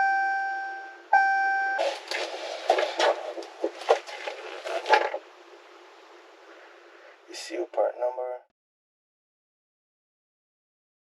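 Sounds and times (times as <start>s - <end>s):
irregular knocks and rattles: 1.8s - 5.2s.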